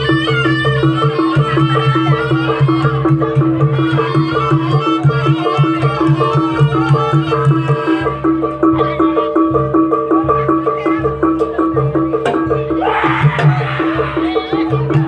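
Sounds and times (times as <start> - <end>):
wavering shawm melody: 0.0 - 11.0
gamelan percussion: 0.0 - 15.0.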